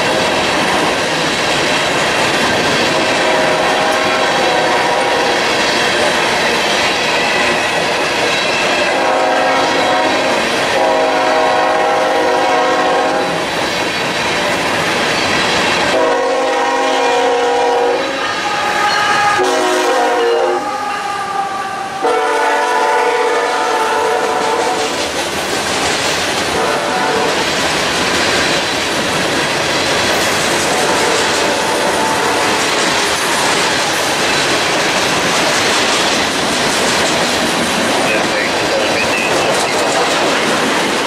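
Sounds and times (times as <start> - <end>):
freight train rumbling over rails: 0.0 - 41.0
train horn blasts: 3.0 - 5.4, 8.8 - 13.4, 15.9 - 25.0, 26.5 - 27.4, 30.6 - 32.6.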